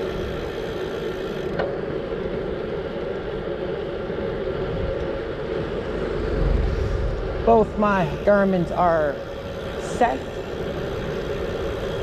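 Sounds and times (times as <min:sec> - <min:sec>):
wind rumble on microphone: 0:01.8 - 0:08.4.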